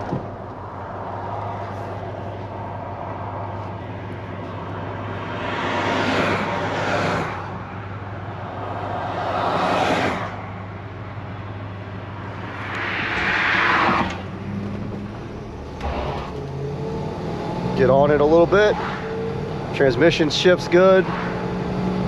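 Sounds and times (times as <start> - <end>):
car engine droning: 0.0 - 22.0
road noise: 0.0 - 22.0
rushes of noise: 12.2 - 17.7.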